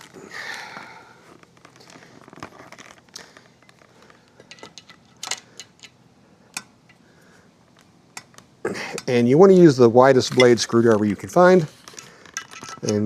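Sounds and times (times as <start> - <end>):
handling rustle: 1.3 - 5.2.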